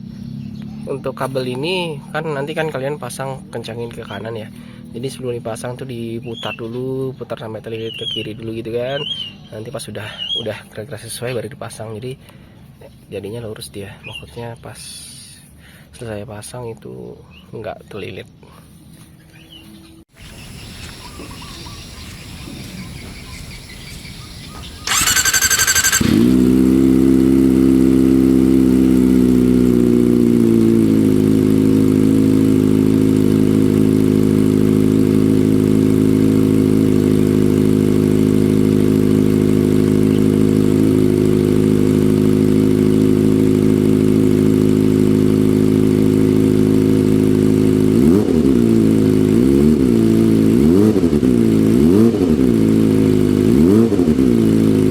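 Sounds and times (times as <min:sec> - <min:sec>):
motorcycle engine idling: 0:00.0 - 0:02.1, 0:20.2 - 0:54.9
motorcycle starter cranking: 0:24.4 - 0:26.6.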